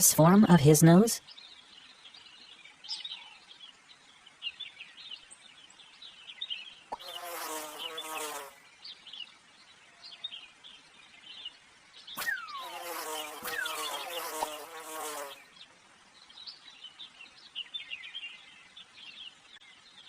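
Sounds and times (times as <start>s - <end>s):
fly buzzing: 7.0s - 8.6s, 12.2s - 15.5s
high bird chirps: 12.2s - 15.4s.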